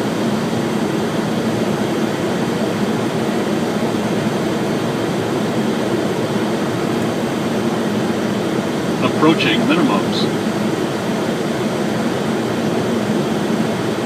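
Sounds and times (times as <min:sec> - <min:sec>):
airplane cockpit airflow noise: 0:09.0 - 0:10.4.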